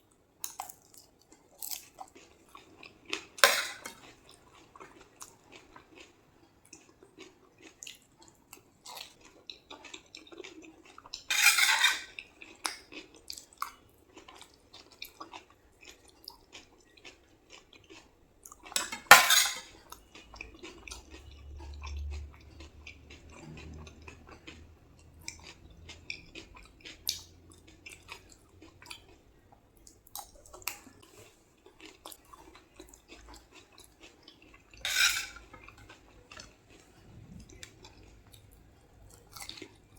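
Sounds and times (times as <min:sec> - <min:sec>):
spoon clinking on plate: 0:03.4 - 0:03.9, 0:11.3 - 0:12.1, 0:18.8 - 0:19.6, 0:34.9 - 0:35.4.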